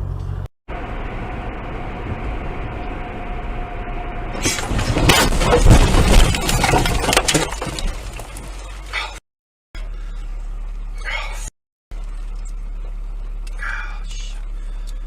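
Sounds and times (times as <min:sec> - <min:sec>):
car running: 0:00.0 - 0:09.2, 0:09.8 - 0:15.0
car crash crunching impacts: 0:04.3 - 0:08.8
glass breaking: 0:04.5 - 0:08.8.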